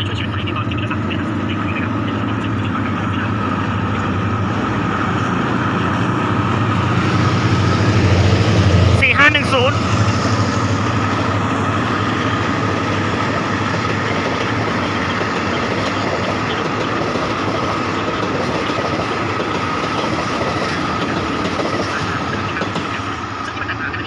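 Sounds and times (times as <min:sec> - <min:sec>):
train wheels clacking: 0:09.8 - 0:23.1.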